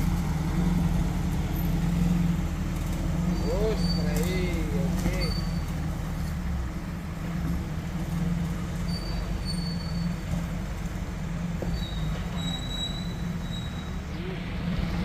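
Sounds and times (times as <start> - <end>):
vehicle engine rumbling: 0.0 - 15.0
thin high squeals: 3.2 - 5.7, 8.8 - 10.3, 11.7 - 14.3.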